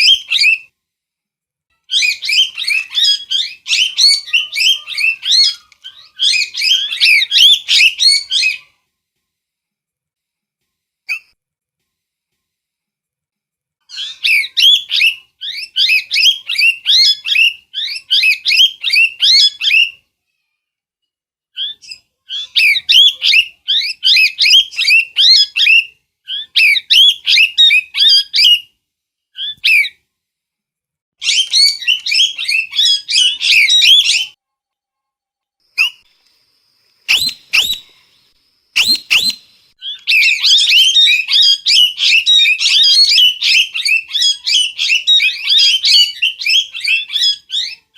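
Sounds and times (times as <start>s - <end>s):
parrot chattering: 38.8s - 47.8s.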